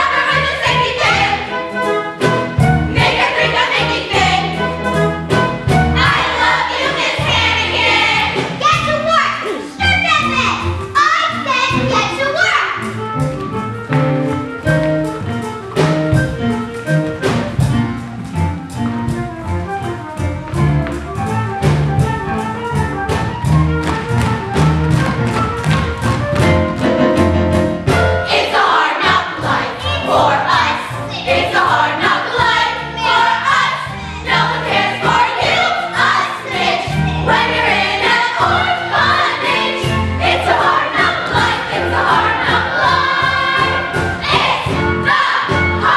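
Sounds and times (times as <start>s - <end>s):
chorus singing: 0.0s - 1.7s, 2.8s - 5.0s, 5.6s - 8.7s, 28.0s - 45.9s
orchestra playing: 0.0s - 45.9s.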